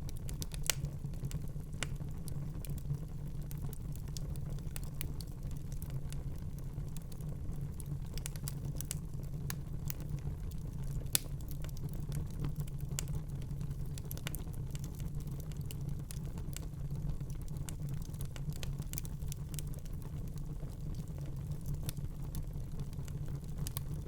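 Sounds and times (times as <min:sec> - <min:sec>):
fire pop: 0:00.0 - 0:02.0
wood fire crackling: 0:00.0 - 0:24.0.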